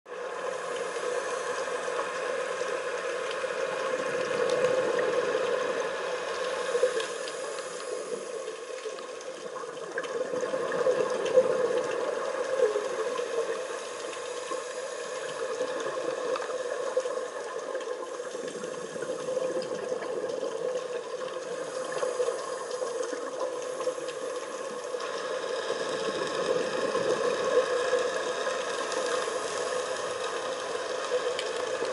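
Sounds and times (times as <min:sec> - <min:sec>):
muffled underwater water noise: 0:00.1 - 0:31.9.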